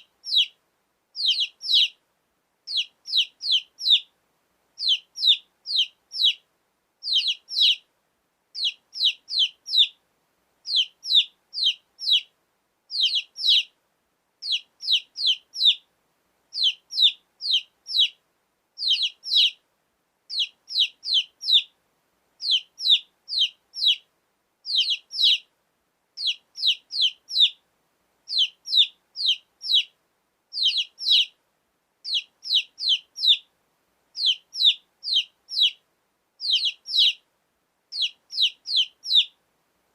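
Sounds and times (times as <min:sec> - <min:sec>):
chicks peeping: 0:00.0 - 0:00.6, 0:01.2 - 0:02.0, 0:02.7 - 0:04.1, 0:04.8 - 0:06.4, 0:07.0 - 0:07.8, 0:08.6 - 0:10.0, 0:10.7 - 0:12.3, 0:12.9 - 0:13.7, 0:14.4 - 0:15.8, 0:16.6 - 0:18.2, 0:18.8 - 0:19.6, 0:20.3 - 0:21.7, 0:22.4 - 0:24.0, 0:24.7 - 0:25.5, 0:26.2 - 0:27.6, 0:28.3 - 0:29.9, 0:30.6 - 0:31.4, 0:32.1 - 0:33.5, 0:34.2 - 0:35.8, 0:36.4 - 0:37.2, 0:37.9 - 0:39.3.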